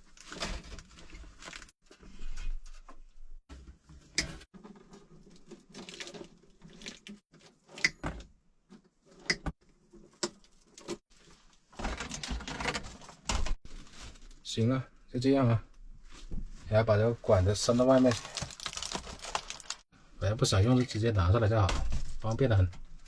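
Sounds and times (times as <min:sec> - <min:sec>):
scraping and handling noise: 0:00.0 - 0:07.9.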